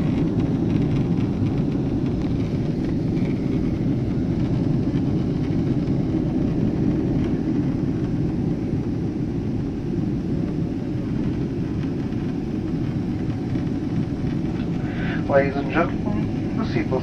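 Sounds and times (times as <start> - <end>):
jet engines rumbling: 0.0 - 17.0
rushing air: 10.8 - 16.8.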